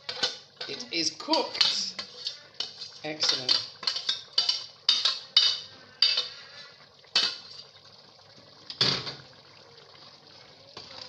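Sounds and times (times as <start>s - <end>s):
metal utensil clinking on pot: 0.0s - 6.4s.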